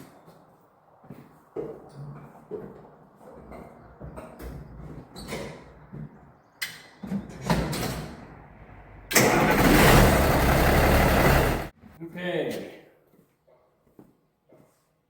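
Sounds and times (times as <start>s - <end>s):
tractor diesel engine running: 9.1s - 11.7s.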